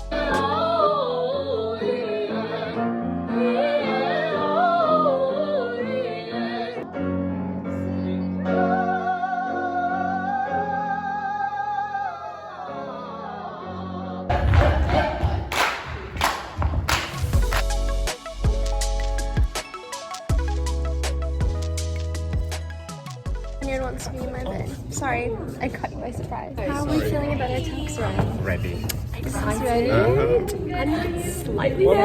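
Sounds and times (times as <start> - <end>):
piano chords: 16.6 - 24.1.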